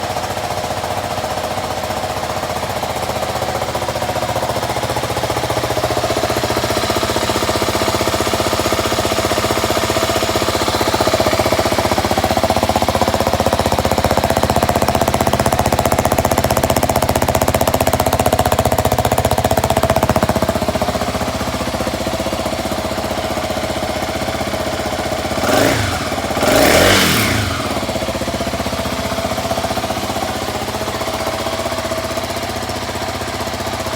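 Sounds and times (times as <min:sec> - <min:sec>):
motorcycle engine idling: 0:00.0 - 0:33.9
engine throttle blips: 0:24.3 - 0:29.4.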